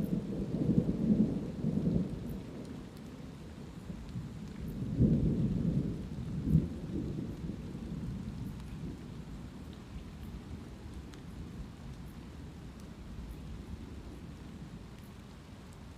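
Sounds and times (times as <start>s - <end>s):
thunder rumbling: 0.0s - 3.2s, 3.9s - 9.1s
light rain falling: 0.0s - 15.9s.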